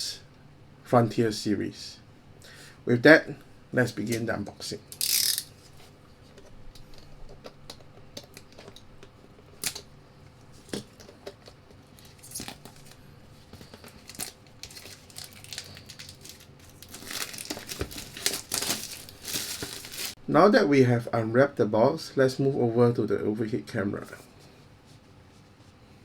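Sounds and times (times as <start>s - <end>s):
wrapping tearing and crinkling: 11.8s - 20.2s.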